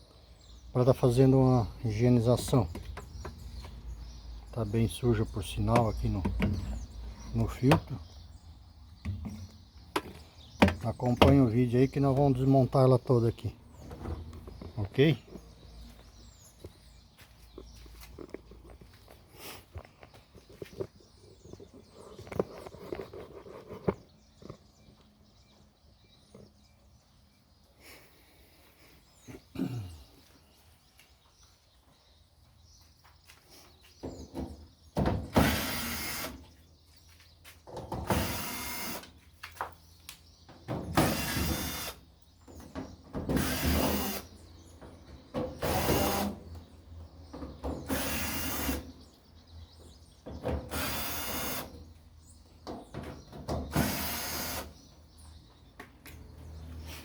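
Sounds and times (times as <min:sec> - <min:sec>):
tool and panel clicks and knocks: 0:09.0 - 0:11.5
power drill-driver bursts: 0:35.4 - 0:36.4, 0:38.1 - 0:39.1, 0:41.0 - 0:42.0, 0:43.4 - 0:44.3, 0:45.6 - 0:46.4, 0:47.9 - 0:48.8, 0:50.7 - 0:51.7, 0:53.7 - 0:54.7.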